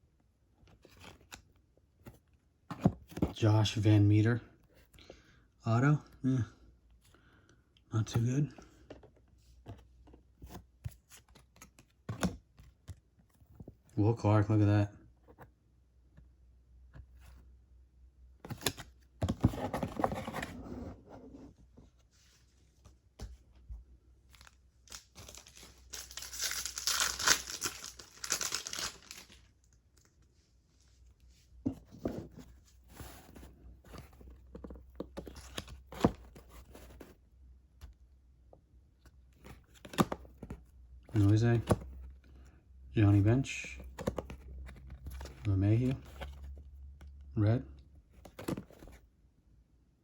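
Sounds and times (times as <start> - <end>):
foil pack tearing and crinkling: 25.3 - 29.4.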